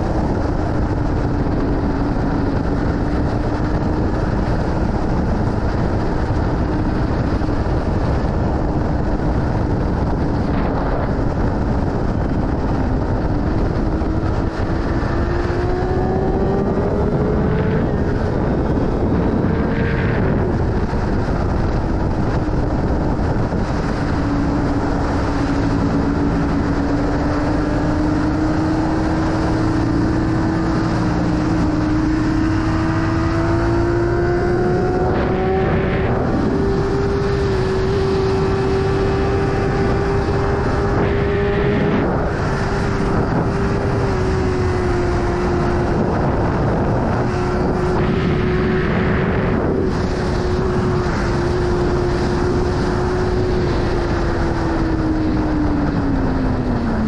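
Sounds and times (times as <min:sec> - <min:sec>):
motorcycle engine running: 0:00.0 - 0:57.0
wind rush: 0:00.0 - 0:57.0.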